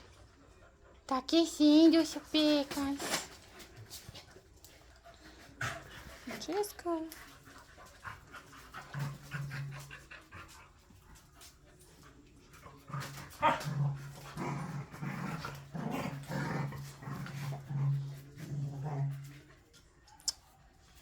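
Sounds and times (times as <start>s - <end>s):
dogs growling in play: 3.2s - 19.9s.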